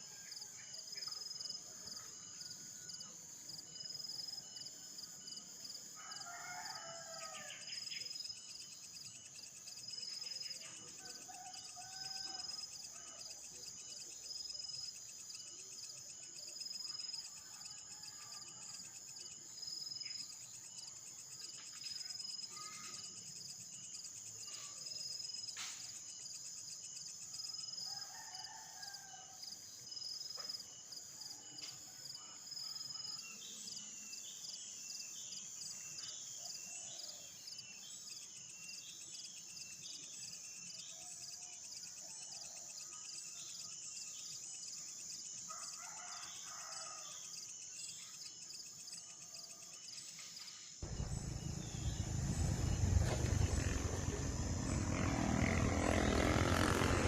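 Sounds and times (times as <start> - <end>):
insects droning: 0.0 - 57.0
distant rooster crowing: 6.0 - 7.7, 11.2 - 13.2, 27.9 - 29.5, 45.5 - 47.2, 50.8 - 57.0.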